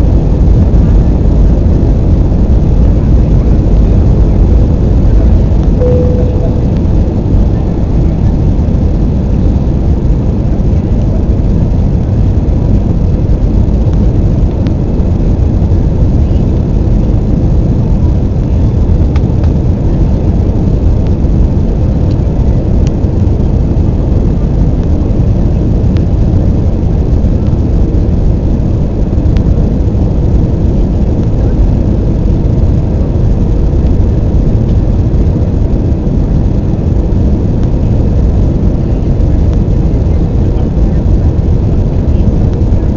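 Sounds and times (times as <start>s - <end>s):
airplane cabin rumble: 0.0s - 42.9s
faint steady hum: 0.0s - 42.9s.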